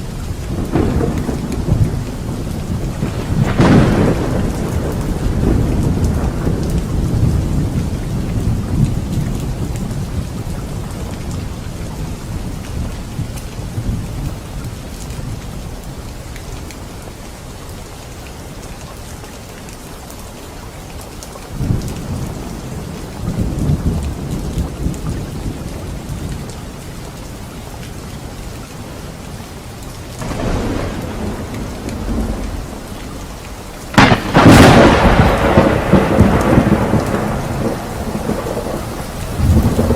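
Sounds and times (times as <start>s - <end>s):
steady rain: 0.0s - 39.9s
loud thunderclap: 0.5s - 10.3s, 30.2s - 39.9s
rolling thunder: 0.5s - 14.3s, 21.6s - 26.5s, 30.2s - 39.9s.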